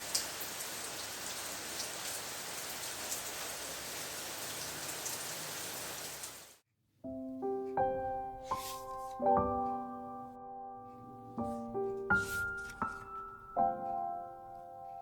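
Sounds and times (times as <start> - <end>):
steady rain falling: 0.0 - 6.6.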